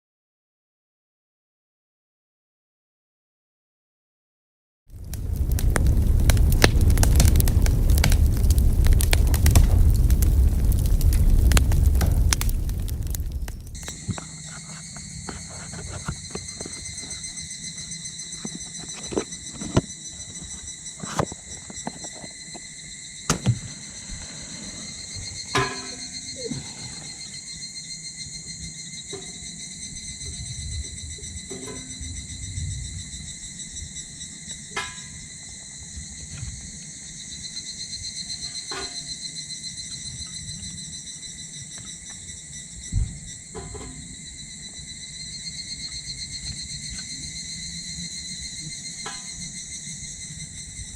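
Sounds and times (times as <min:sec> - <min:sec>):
wood fire crackling and popping: 0:04.9 - 0:27.4
insects chirring: 0:04.9 - 0:50.9.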